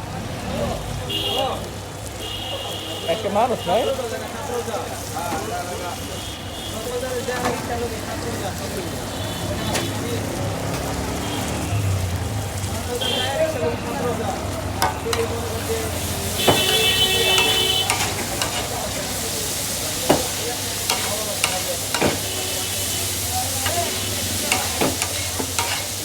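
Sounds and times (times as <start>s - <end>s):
meat sizzling in hot oil: 1.6s - 26.0s
spatula clanking on metal pan: 14.8s - 19.0s, 19.9s - 22.4s, 23.6s - 26.0s.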